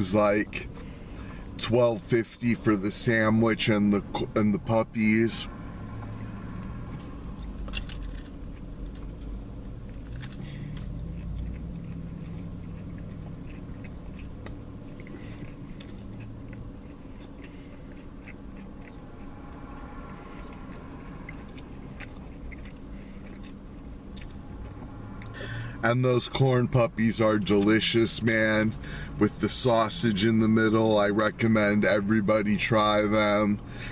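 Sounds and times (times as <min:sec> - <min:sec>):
low hum: 0:00.0 - 0:32.6
man chewing food: 0:05.7 - 0:25.8.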